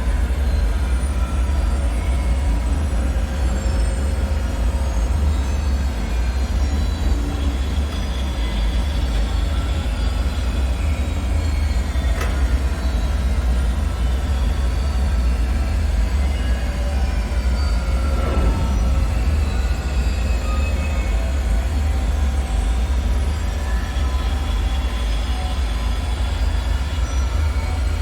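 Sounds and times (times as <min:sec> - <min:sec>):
deep rumbling drone: 0:00.0 - 0:28.0.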